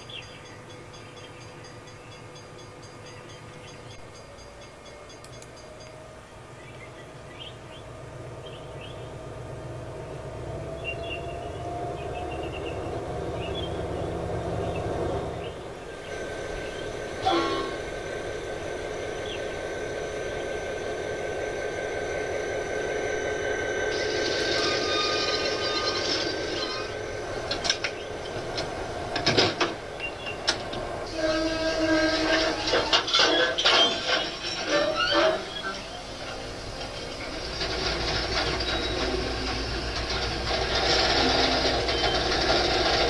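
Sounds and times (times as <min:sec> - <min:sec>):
train humming on rails: 0:00.0 - 0:43.0
sharp horn-like sound: 0:17.2 - 0:18.0, 0:31.1 - 0:32.9.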